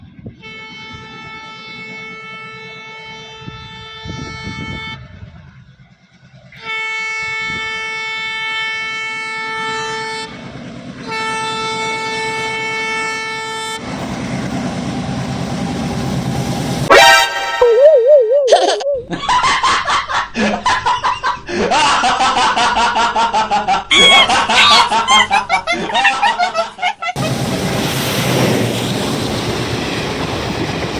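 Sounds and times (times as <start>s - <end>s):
moving train rumble: 0.0s - 17.8s, 18.5s - 30.9s
train horn blasts: 0.3s - 5.5s, 6.6s - 13.8s, 16.9s - 17.8s.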